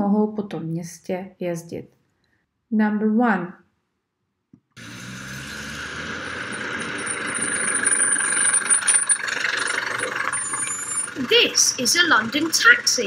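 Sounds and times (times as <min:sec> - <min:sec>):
street traffic: 0:04.8 - 0:13.0
taxi engine running: 0:04.8 - 0:13.0.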